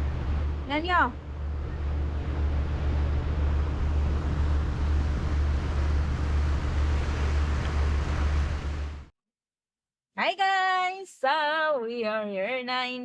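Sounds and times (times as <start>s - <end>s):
low engine drone: 0.0s - 9.1s
rushing hiss of water: 3.9s - 9.1s.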